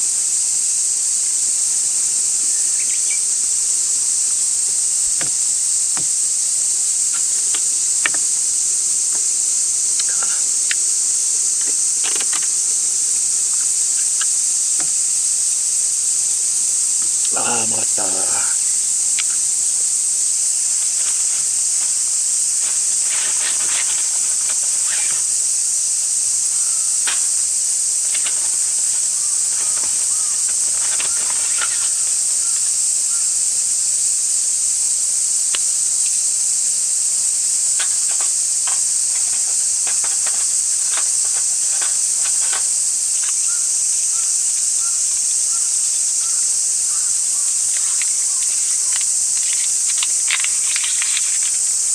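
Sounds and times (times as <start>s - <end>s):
cicadas buzzing: 0.0s - 51.9s
faint clicks: 47.7s - 51.6s.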